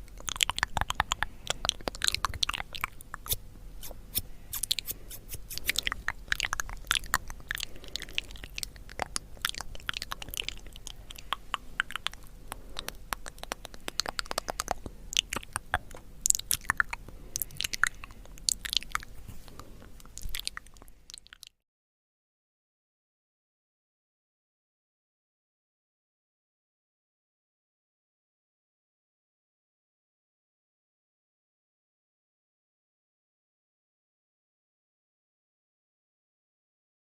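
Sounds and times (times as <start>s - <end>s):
hard candy crunching: 0.0s - 21.4s.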